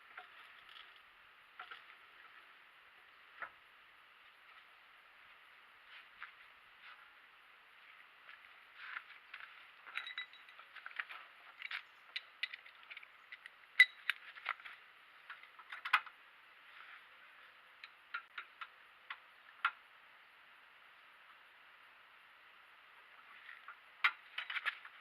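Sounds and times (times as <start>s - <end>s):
metal tools clinking: 9.8s - 10.8s.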